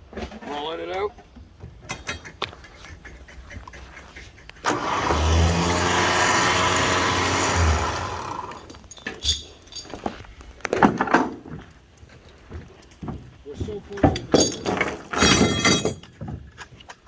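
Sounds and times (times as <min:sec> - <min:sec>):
winch whirring: 0:04.6 - 0:10.0.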